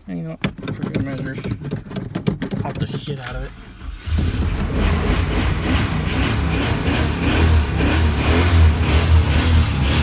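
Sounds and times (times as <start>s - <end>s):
truck engine rumbling: 2.8s - 10.0s.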